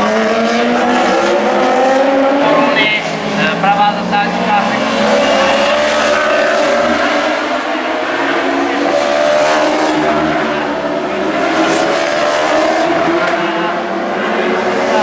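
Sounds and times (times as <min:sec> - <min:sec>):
superbike engines at high revs: 0:02.4 - 0:15.0.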